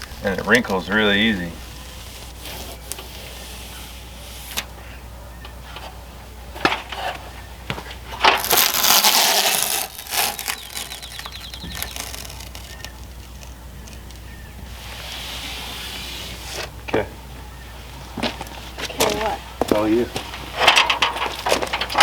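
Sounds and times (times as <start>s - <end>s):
faint crackling tape peel: 0.0s - 4.7s, 8.1s - 16.8s
tape ripping off roll: 0.0s - 4.7s, 8.1s - 16.8s.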